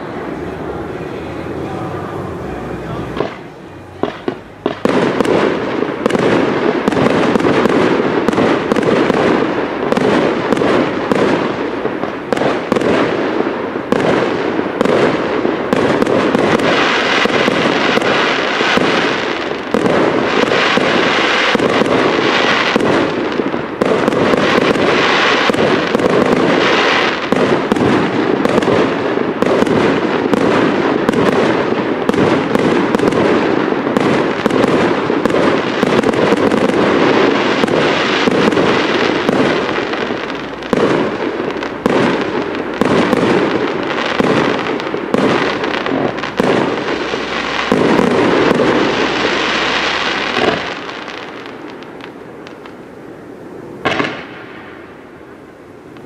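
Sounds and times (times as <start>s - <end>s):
fireworks bangs and pops: 0.0s - 52.9s, 53.6s - 54.9s.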